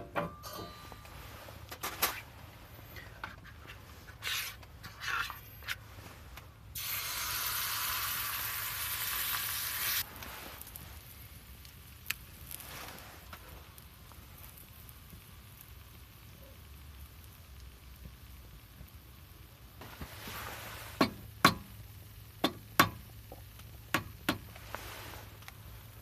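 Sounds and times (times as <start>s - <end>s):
steady sizzling hiss: 0.0s - 26.0s.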